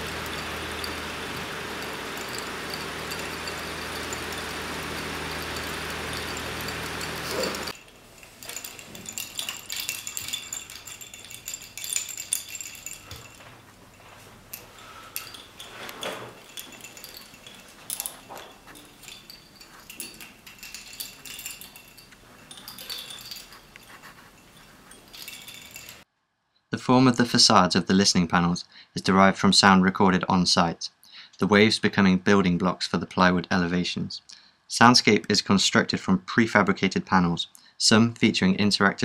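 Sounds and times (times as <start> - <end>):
small hard parts clinking: 0.0 - 26.0.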